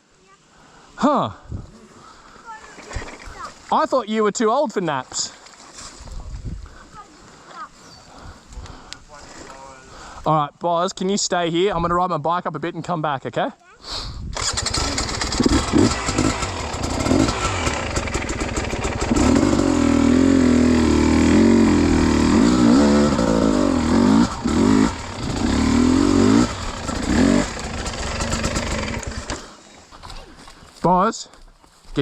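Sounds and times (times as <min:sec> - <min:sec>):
dirt bike engine revving: 0:14.4 - 0:29.6.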